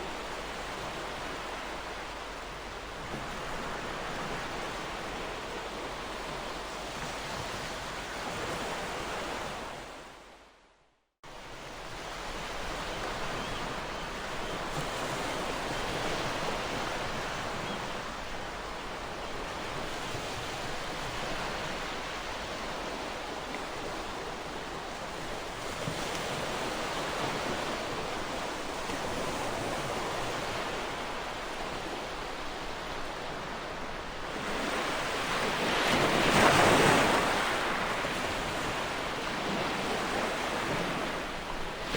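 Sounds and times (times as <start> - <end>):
ocean waves washing on shore: 11.3 - 41.9.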